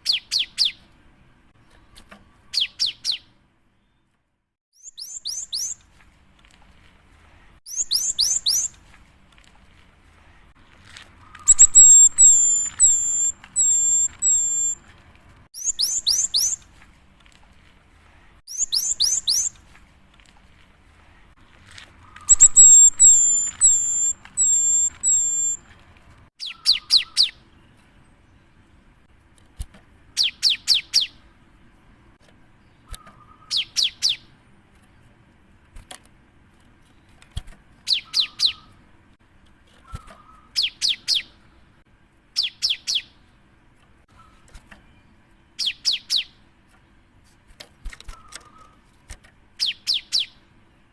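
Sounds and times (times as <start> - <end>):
bird singing whistled phrases: 2.5 - 3.3, 4.8 - 5.8, 7.7 - 8.8, 11.4 - 14.8, 15.6 - 16.6, 18.5 - 19.6, 22.2 - 25.6, 37.9 - 38.7.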